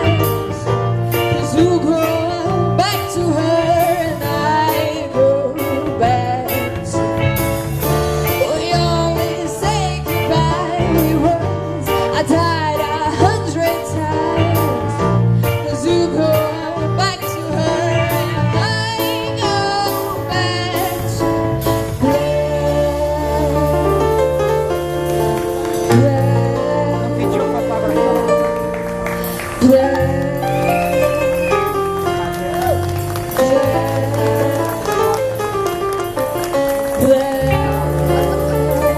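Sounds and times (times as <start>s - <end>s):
live band playing: 0.0s - 38.9s
person singing: 8.3s - 21.4s, 22.0s - 28.8s, 29.4s - 35.7s, 36.8s - 38.9s.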